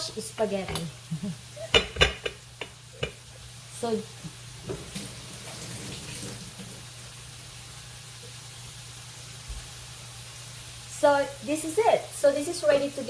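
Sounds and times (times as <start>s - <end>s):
kitchen hiss: 0.0s - 13.0s
dishware clattering: 1.6s - 3.2s.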